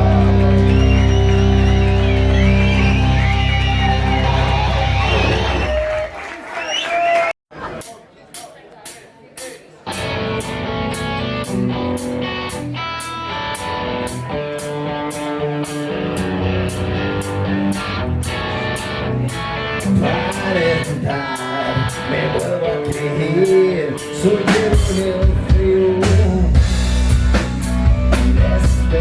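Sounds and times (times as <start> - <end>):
electric guitars playing chords: 0.0 - 5.7, 9.8 - 29.0
steady cymbal beat: 7.8 - 29.0
person singing: 18.4 - 26.9, 27.9 - 29.0.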